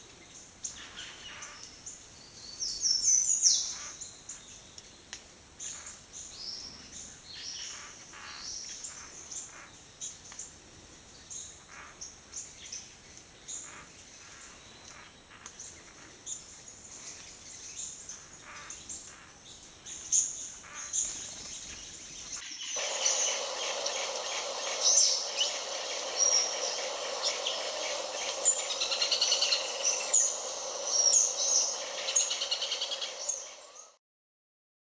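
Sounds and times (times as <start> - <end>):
bird chirps and calls: 22.3 - 34.0.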